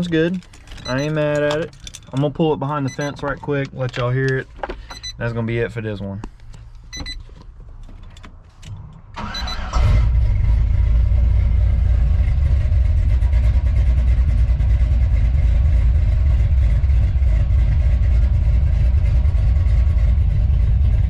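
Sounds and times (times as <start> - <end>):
truck engine starting and idling: 8.5 - 21.0.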